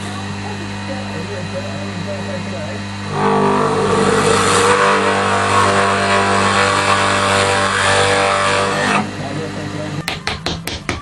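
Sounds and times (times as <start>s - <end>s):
electric drill boring into wood: 3.1s - 9.1s.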